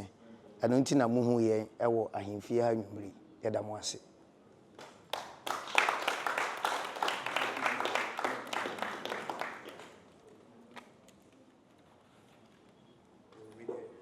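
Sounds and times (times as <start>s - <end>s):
people clapping: 4.8s - 10.2s.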